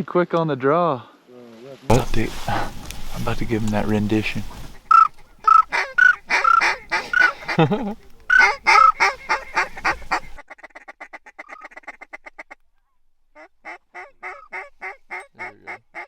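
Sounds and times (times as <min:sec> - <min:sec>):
goose call honks and clucks: 0:04.6 - 0:12.6, 0:13.4 - 0:16.0
fast short goose call notes: 0:04.7 - 0:12.6, 0:13.4 - 0:16.0.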